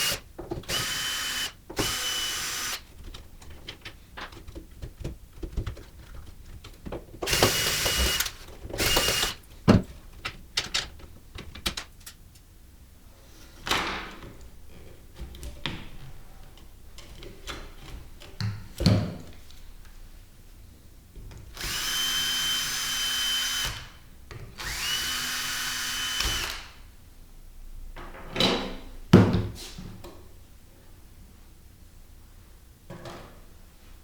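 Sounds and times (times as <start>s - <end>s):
power drill running: 0.0s - 2.8s, 7.3s - 9.4s, 21.6s - 24.0s, 24.6s - 26.8s
parts knocking and clunking: 1.7s - 12.1s.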